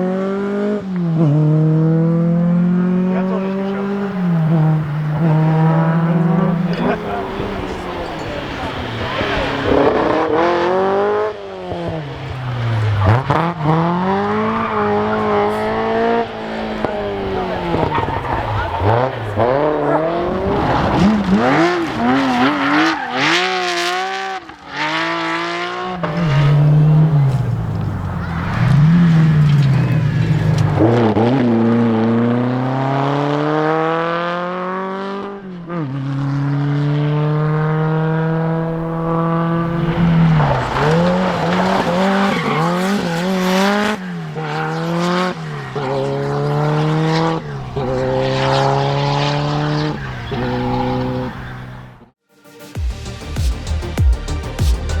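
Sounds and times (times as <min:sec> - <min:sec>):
rally car engine revving: 0:00.0 - 0:52.2.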